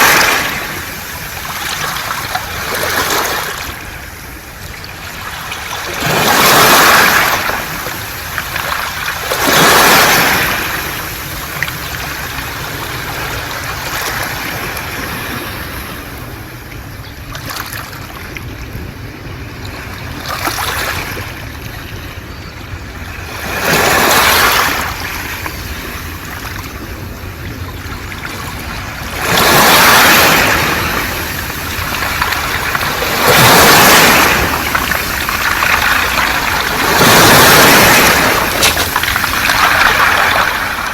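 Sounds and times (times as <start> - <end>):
waves washing over pebbles: 0.0 - 16.7, 17.3 - 21.6, 23.1 - 40.9
low surf rumble: 24.6 - 40.9.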